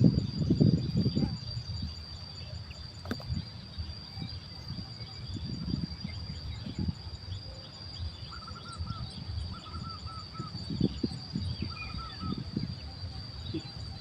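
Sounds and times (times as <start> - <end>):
high insect drone: 0.0 - 14.0
bird calling: 8.2 - 10.6.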